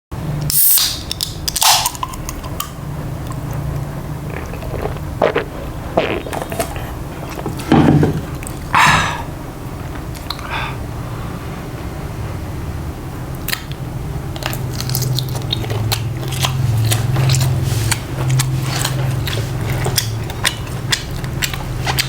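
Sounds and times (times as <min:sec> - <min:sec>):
steady low hum: 0:00.2 - 0:22.0
eating clicks: 0:13.4 - 0:22.0.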